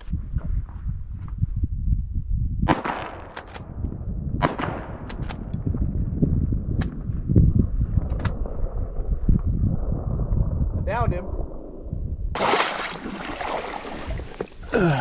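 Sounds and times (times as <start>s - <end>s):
wind rumbling on microphone: 0.0s - 15.0s
shotgun shots: 2.7s - 3.4s.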